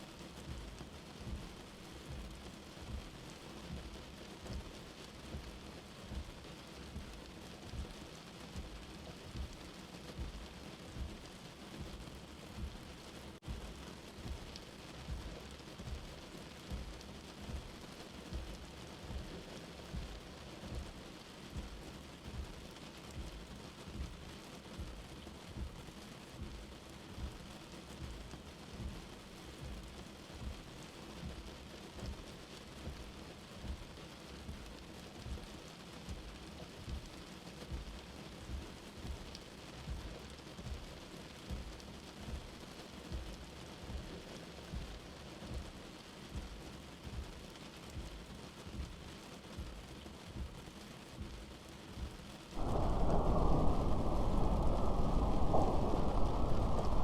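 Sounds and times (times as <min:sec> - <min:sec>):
rain falling: 0:00.0 - 0:57.0
soft low thuds: 0:52.0 - 0:57.0.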